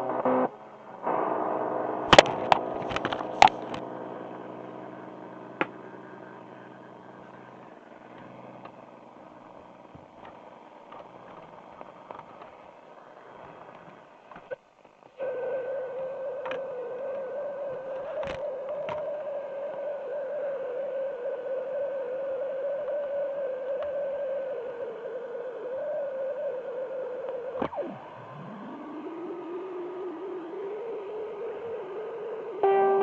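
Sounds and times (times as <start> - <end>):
sustained wavering tone: 27.7 - 33.0.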